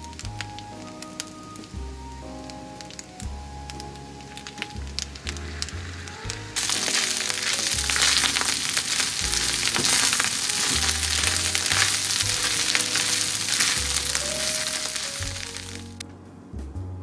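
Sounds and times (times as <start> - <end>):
stir-fry sizzling in skillet: 4.8 - 16.0
wooden spoon stirring: 6.3 - 16.0.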